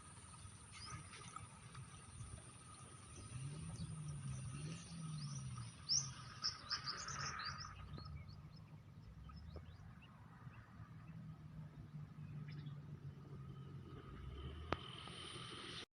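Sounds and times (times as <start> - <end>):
insect drone: 0.0 - 8.1, 12.8 - 15.9
low hum: 0.0 - 15.9
bird chirping: 0.3 - 13.0.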